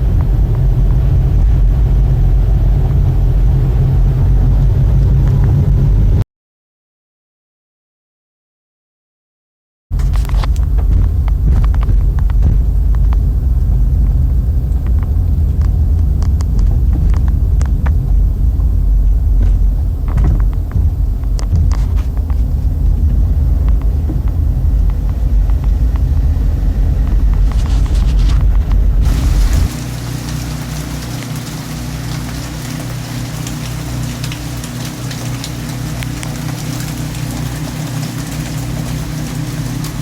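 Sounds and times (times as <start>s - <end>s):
loud low rumble: 0.0s - 6.2s, 9.9s - 40.0s.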